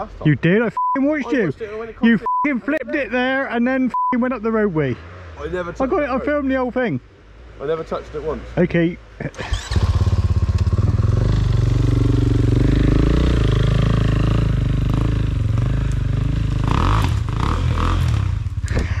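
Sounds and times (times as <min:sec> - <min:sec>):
motorcycle engine revving: 0:09.4 - 0:18.8.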